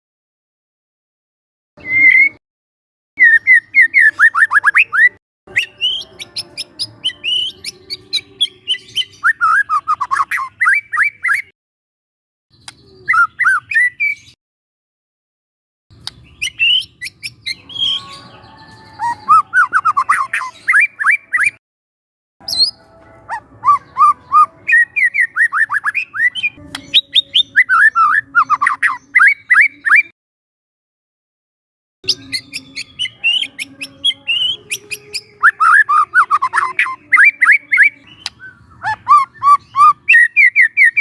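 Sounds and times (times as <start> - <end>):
bird singing whistled notes: 1.8 - 2.4, 3.2 - 11.5, 12.5 - 14.4, 16.0 - 21.6, 22.4 - 30.1, 32.1 - 41.0.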